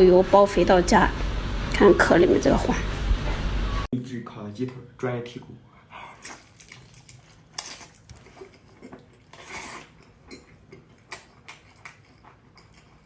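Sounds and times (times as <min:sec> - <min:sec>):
crab shell cracking: 0:06.2 - 0:08.2.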